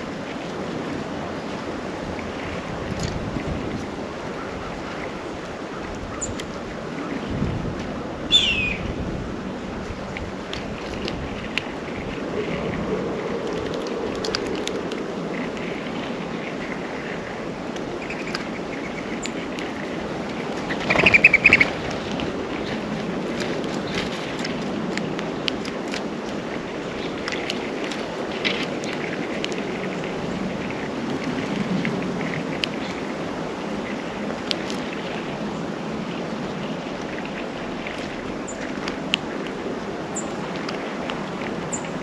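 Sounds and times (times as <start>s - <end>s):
steady rushing noise: 0.0s - 42.0s
faint high bird chirps: 8.3s - 8.9s
songbird rapid call: 8.3s - 8.9s, 20.8s - 21.7s.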